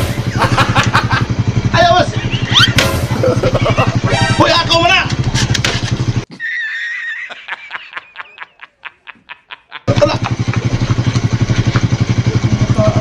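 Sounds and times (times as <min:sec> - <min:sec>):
motorcycle engine idling: 0:00.0 - 0:06.3, 0:09.9 - 0:13.0.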